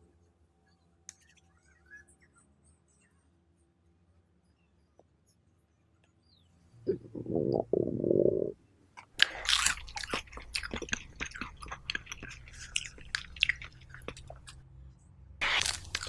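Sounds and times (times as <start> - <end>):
crunching bites and chewing: 9.0 - 14.6, 15.4 - 16.0.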